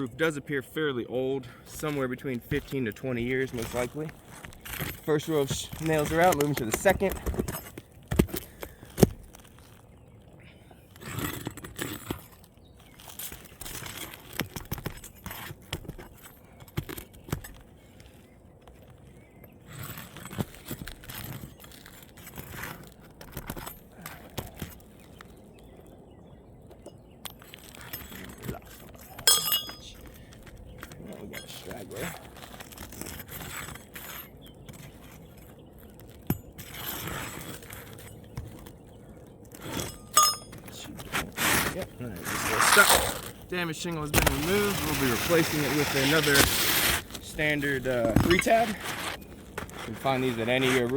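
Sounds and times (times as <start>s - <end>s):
tools scraping under shingle: 0.0s - 26.0s, 26.6s - 50.9s.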